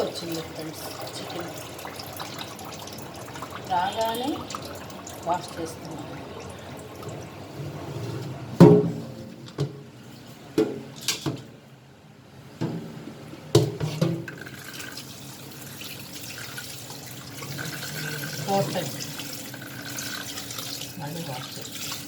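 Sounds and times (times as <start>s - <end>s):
water sloshing and splashing: 0.0s - 11.4s, 14.3s - 22.0s.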